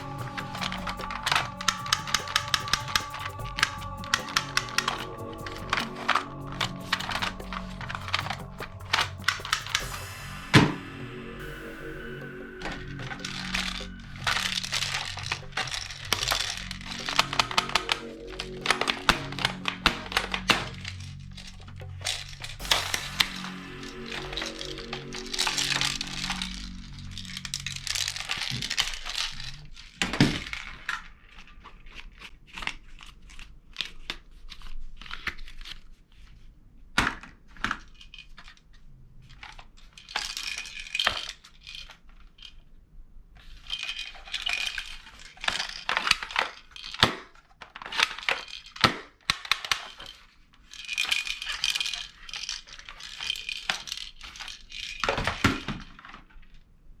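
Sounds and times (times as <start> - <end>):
plastic toys clicking and knocking: 43.6 - 56.2.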